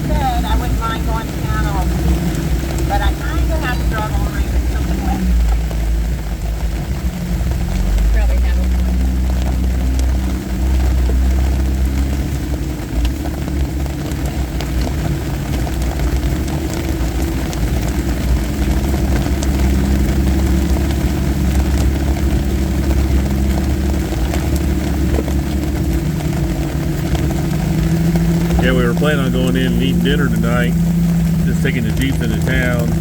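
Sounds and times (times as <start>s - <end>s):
car engine low drone: 0.0s - 33.0s.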